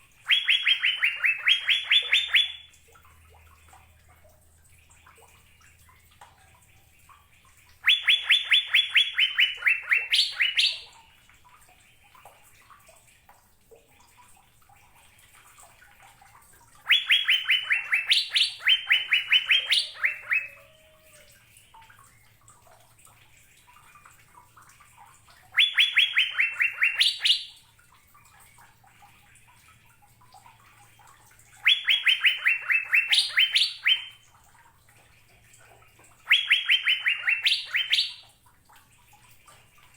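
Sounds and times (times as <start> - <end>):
bird singing whistled notes: 0.3 - 2.7, 7.8 - 10.8, 16.9 - 20.7, 25.6 - 27.6, 31.6 - 34.2, 36.3 - 38.2.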